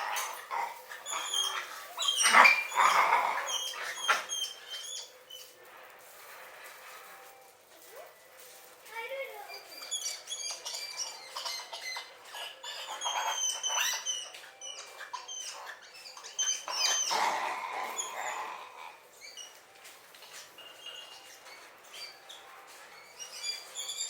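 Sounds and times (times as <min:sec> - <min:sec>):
monkeys calling: 0:00.0 - 0:05.6, 0:09.7 - 0:19.6.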